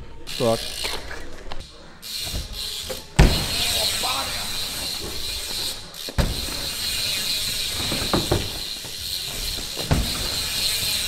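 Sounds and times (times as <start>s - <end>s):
bike hub clicking: 0.2s - 11.0s
bike knocking on wooden ramps: 3.2s - 11.0s.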